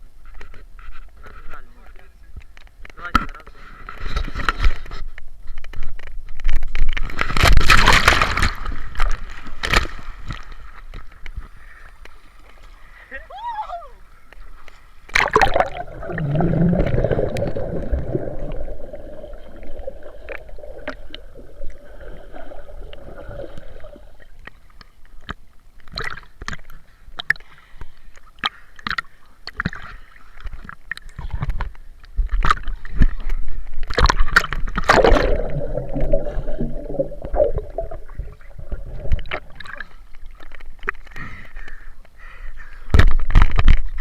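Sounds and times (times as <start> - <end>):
water sloshing and gurgling: 6.5 - 13.0, 14.4 - 27.5, 28.2 - 41.8
water splashing: 7.0 - 11.2, 14.8 - 24.8, 33.8 - 41.2.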